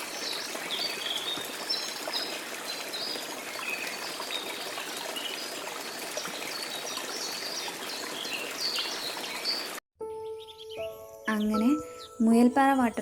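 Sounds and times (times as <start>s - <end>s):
stream and waterfall running: 0.0s - 9.8s
high bird chirps: 8.3s - 12.2s.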